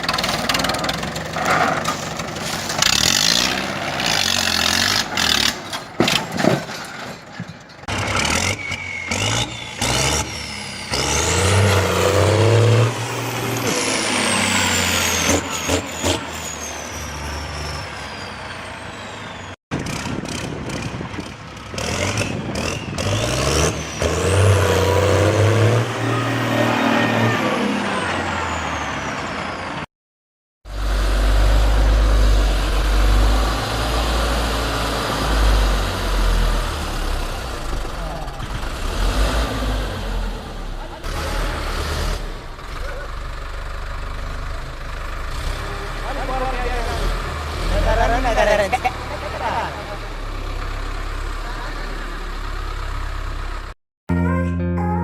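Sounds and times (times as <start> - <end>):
tractor engines revving: 0.0 - 29.9, 30.7 - 53.8.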